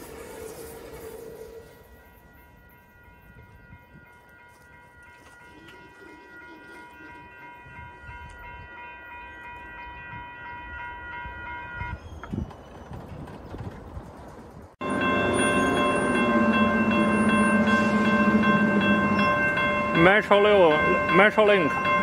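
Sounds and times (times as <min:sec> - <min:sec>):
railroad warning bell ringing: 0:00.0 - 0:12.3, 0:14.8 - 0:22.0
train rumbling: 0:00.0 - 0:22.0.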